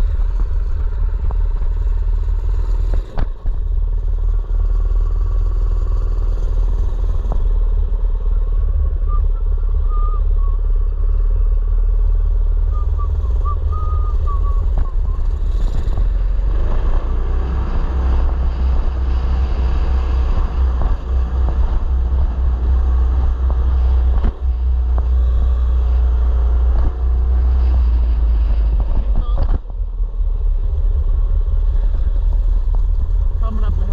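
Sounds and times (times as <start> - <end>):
small petrol engine running: 0.0 - 8.8.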